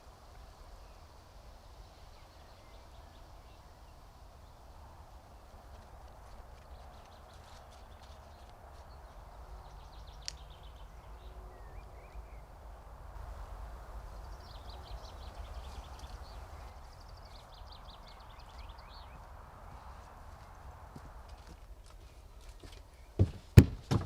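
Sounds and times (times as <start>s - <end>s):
outdoor hiss and low rumble: 0.0s - 24.0s
songbirds trilling: 0.6s - 12.9s, 13.7s - 20.6s.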